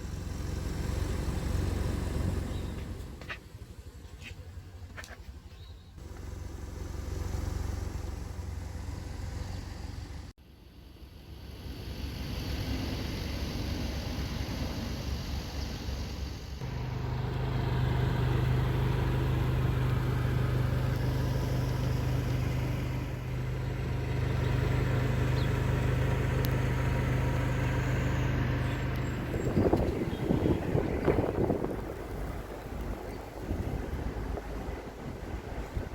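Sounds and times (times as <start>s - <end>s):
car engine hum: 0.0s - 35.9s
wind buffeting: 27.1s - 35.9s.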